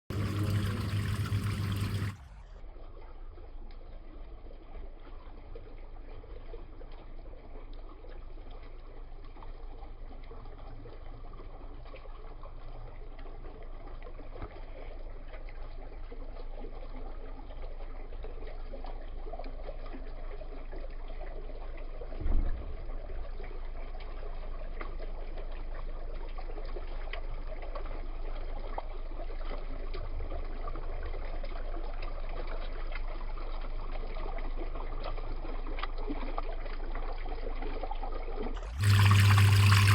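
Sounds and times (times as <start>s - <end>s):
trickling splashing water: 0.1s - 39.9s
brief low thump: 22.2s - 23.0s.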